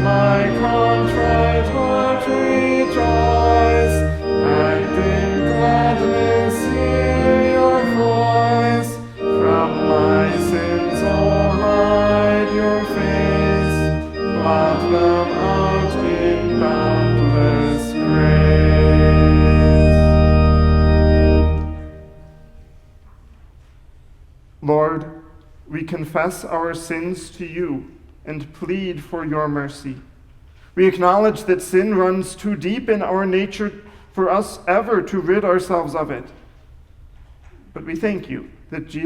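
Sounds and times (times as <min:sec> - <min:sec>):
congregation singing: 0:00.0 - 0:22.5
church organ: 0:00.0 - 0:23.0, 0:30.9 - 0:36.5.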